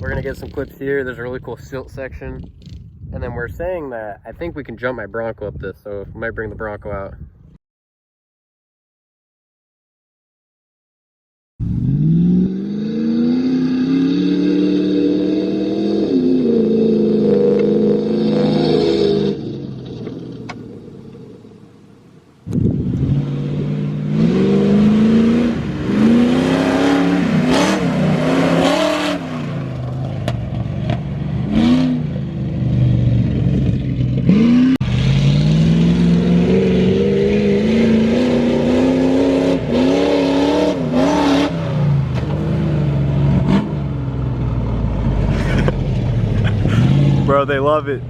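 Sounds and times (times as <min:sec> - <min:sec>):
motorbike engine revving: 0:22.7 - 0:29.6.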